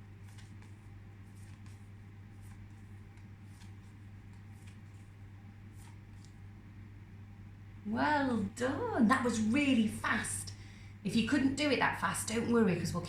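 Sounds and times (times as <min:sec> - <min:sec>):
paper cards clicking and rustling: 0:00.0 - 0:06.4
steady low hum: 0:00.0 - 0:13.0.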